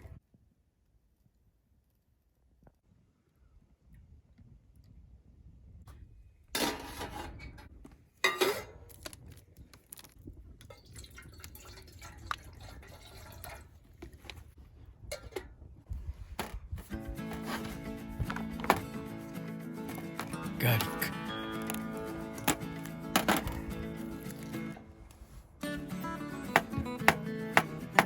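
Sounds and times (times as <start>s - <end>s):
liquid pouring or dripping: 9.9s - 14.2s
utensils clinking and scraping: 17.0s - 24.8s.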